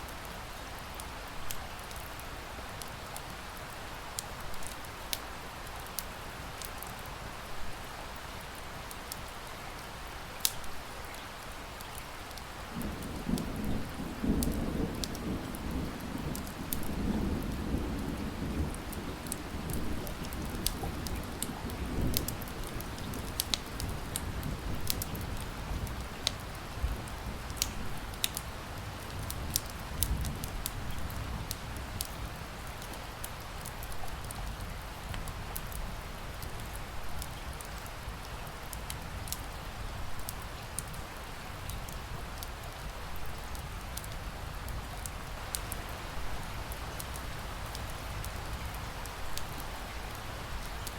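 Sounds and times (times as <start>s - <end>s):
steady rain: 0.0s - 50.9s
wood fire crackling and popping: 10.4s - 10.7s, 11.8s - 17.6s, 18.6s - 35.8s, 36.4s - 50.9s
thunder rumbling: 12.8s - 26.2s.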